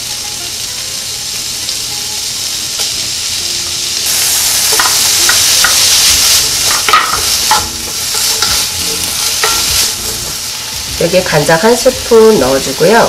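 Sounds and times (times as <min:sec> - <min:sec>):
food sizzling in a frying pan: 0:00.0 - 0:13.0
spoon knocking against pan: 0:06.7 - 0:08.6.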